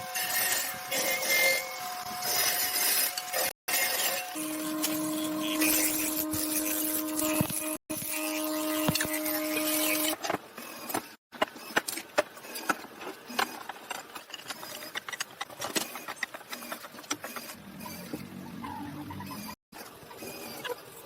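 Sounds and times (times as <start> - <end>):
electric power tool humming: 0.0 - 10.1.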